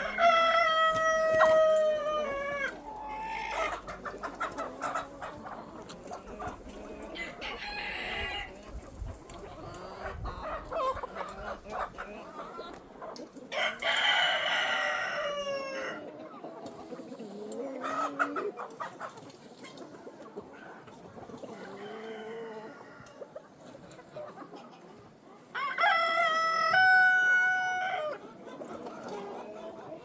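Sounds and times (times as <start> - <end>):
chickens clucking: 0.0 - 30.0
rooster crowing: 13.6 - 16.0, 25.6 - 28.1.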